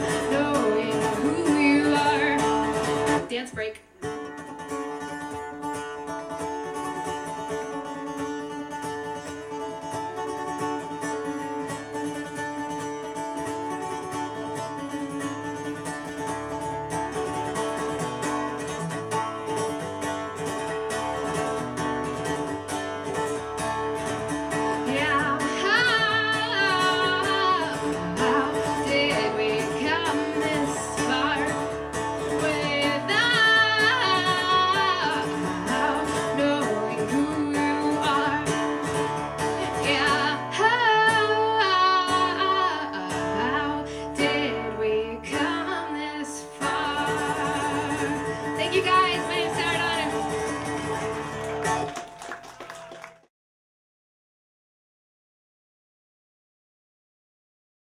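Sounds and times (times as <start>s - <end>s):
woman singing: 0.0s - 3.9s, 24.7s - 50.6s
acoustic guitar playing: 0.0s - 52.0s.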